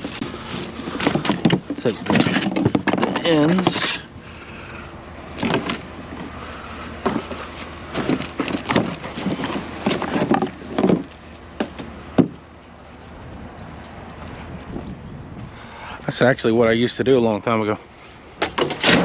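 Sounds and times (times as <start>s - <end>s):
scrap metal knocks and clanks: 0.0s - 4.1s, 5.4s - 6.3s, 7.0s - 12.4s, 18.4s - 19.0s.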